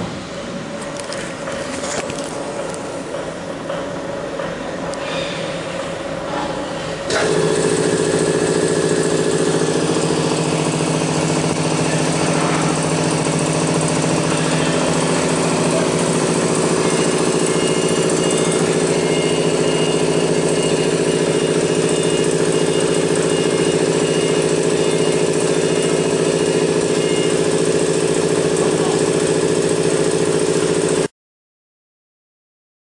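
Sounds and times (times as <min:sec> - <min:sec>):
router spindle whine: 0:07.1 - 0:31.1.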